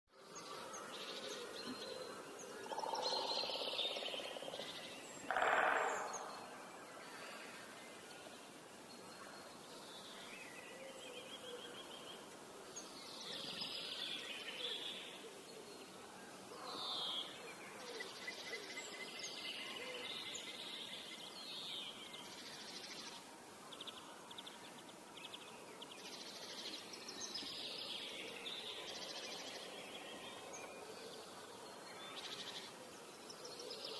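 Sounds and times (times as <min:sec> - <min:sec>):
birds chirping: 0:00.2 - 0:23.2.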